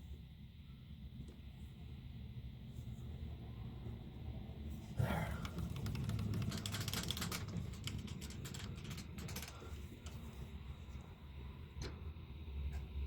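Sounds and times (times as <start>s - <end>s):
steady low hum: 0.0s - 13.0s
metal tools clicking and ticking: 5.4s - 10.2s.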